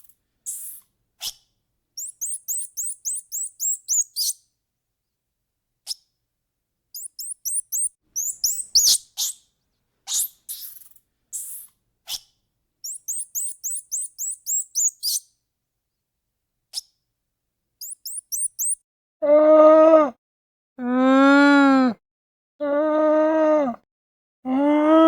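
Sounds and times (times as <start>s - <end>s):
bird chirping: 0.0s - 1.4s, 2.0s - 4.4s, 6.9s - 9.5s, 10.1s - 15.3s, 17.8s - 18.8s.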